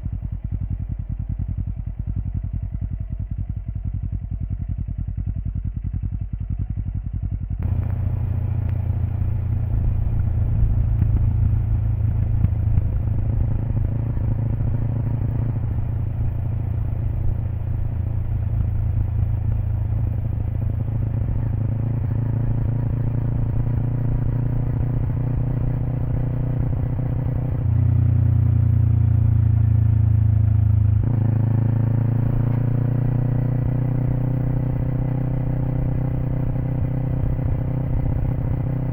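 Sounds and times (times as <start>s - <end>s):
motorcycle engine under load: 0.0s - 38.9s.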